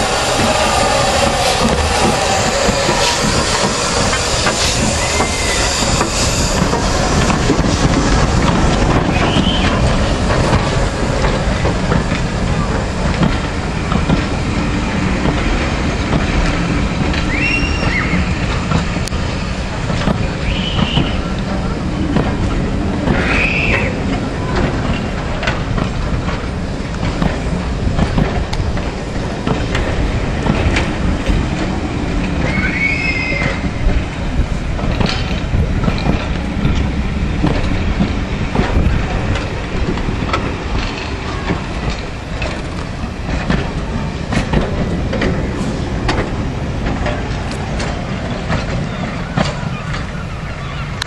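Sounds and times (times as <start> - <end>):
wheel squeal: 0.0 - 7.2, 17.2 - 18.4, 32.4 - 33.8
wheels rumbling on rail: 0.0 - 51.0
clicks over rail joints: 34.7 - 50.2.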